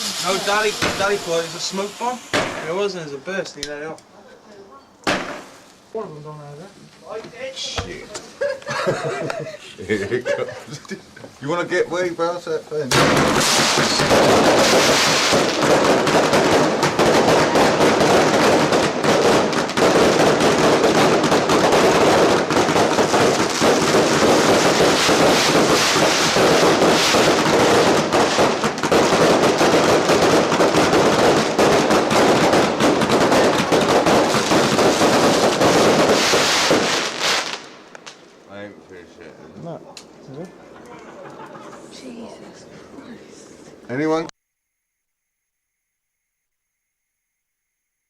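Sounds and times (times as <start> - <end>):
fireworks bangs and crackles: 0.0 - 3.2, 5.0 - 5.7, 12.9 - 38.4.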